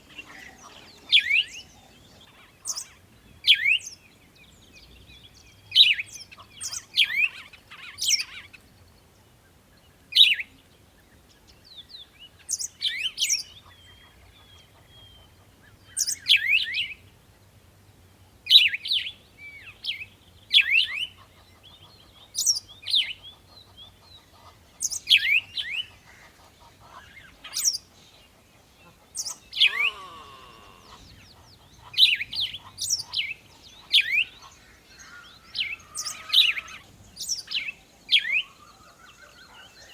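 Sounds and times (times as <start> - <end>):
songbirds chirping: 0.0 - 39.9
lower bird call: 28.8 - 33.3.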